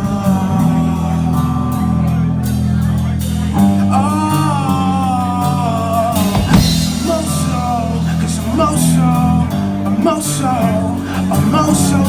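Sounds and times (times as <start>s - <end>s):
live rock band: 0.0s - 12.0s
person singing: 4.0s - 12.0s.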